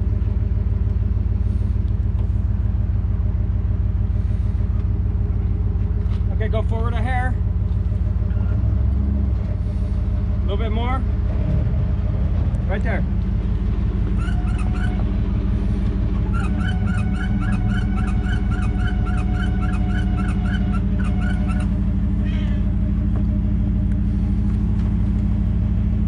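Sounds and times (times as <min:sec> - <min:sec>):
truck engine idling: 0:00.0 - 0:26.0
rapid regular chirping: 0:14.2 - 0:15.0, 0:16.3 - 0:21.8.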